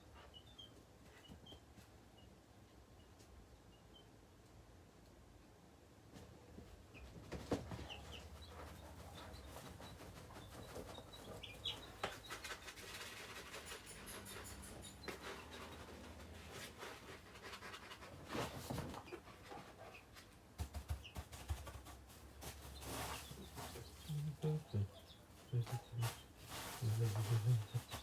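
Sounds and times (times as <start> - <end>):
scratching and rustling: 6.1 - 28.0
baby chicks peeping: 6.9 - 13.8, 14.7 - 18.1, 18.8 - 28.0.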